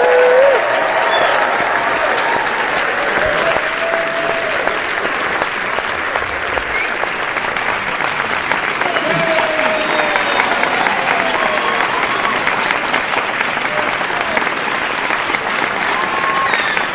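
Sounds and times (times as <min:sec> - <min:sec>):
crowd applauding: 0:00.0 - 0:16.9
voices calling out: 0:06.4 - 0:16.9.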